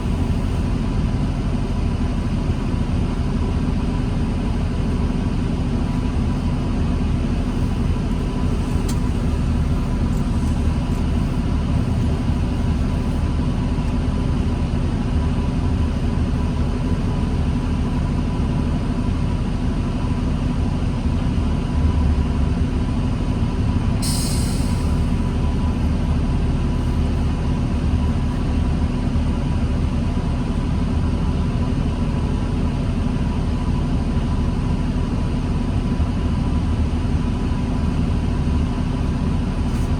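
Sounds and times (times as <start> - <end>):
bus engine rumbling: 0.0 - 39.9
air hiss from bus: 24.0 - 25.3.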